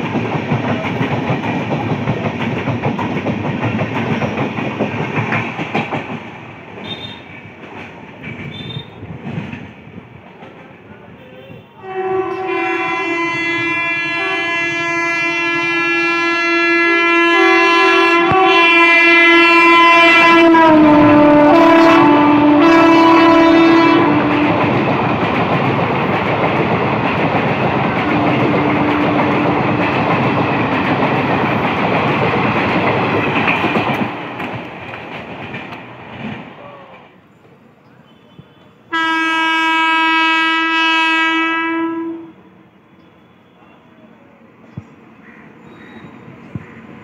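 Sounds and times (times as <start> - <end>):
train wheels clattering: 0.0 - 10.8, 20.9 - 36.7
train horn: 6.8 - 7.3, 11.2 - 25.0, 27.9 - 30.4, 38.1 - 44.2.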